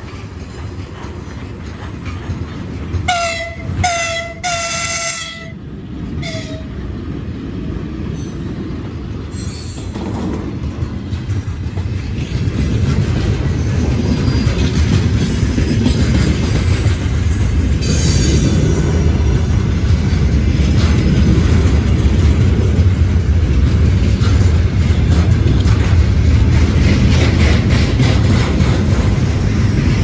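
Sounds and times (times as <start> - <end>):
train wheels rumbling on rails: 0.0 - 30.0
locomotive horn blasts: 3.1 - 5.6.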